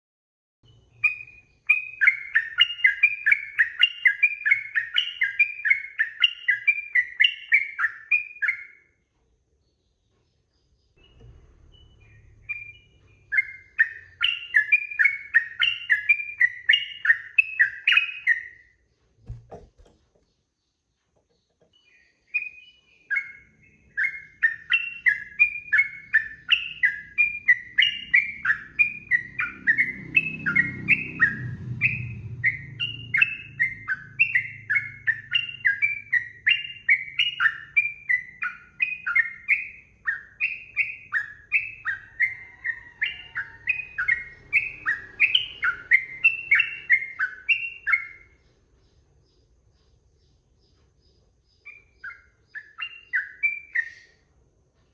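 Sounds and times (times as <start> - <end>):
bird singing whistled notes: 0.6 - 9.0, 9.9 - 19.6, 21.7 - 54.3
short knock: 19.2 - 20.2.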